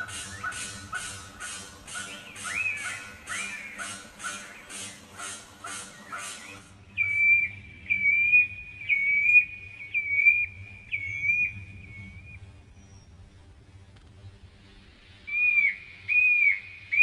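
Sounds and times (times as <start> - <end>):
clear whistled bird notes: 0.0 - 13.2, 15.2 - 17.0
harsh scratchy bird chirps: 0.0 - 13.2.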